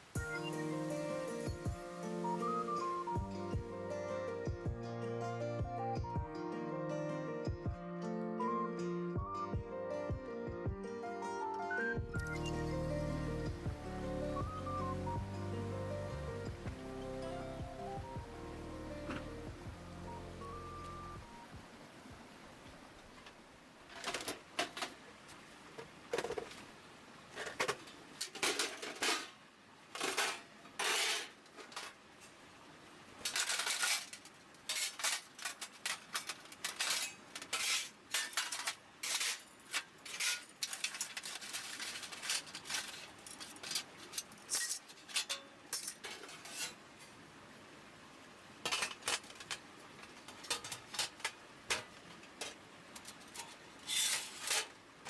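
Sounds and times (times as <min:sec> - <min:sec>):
thin metal pieces clanking: 0:33.3 - 0:46.8, 0:48.7 - 0:49.6, 0:50.2 - 0:54.8.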